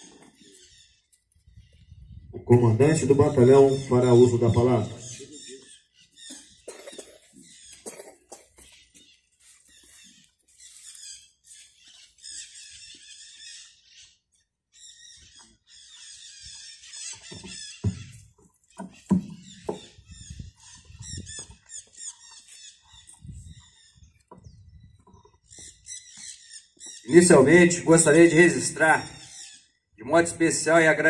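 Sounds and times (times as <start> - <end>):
birds singing: 0.0 - 31.0
low thumps and knocks: 17.3 - 21.6.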